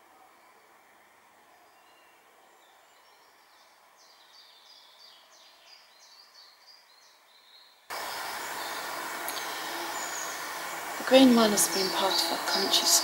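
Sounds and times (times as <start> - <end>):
faint steady hiss: 0.0 - 13.0
songbird singing: 1.7 - 13.0
loud rushing noise: 7.9 - 13.0.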